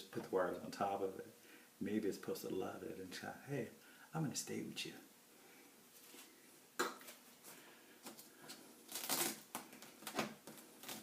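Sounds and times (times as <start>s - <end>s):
tape and wiring crinkling: 7.0s - 11.0s.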